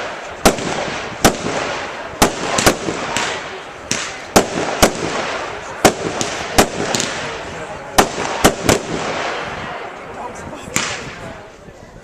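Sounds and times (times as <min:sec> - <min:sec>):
fireworks bursting with loud bangs: 0:00.0 - 0:11.5
continuous hiss: 0:00.0 - 0:12.0.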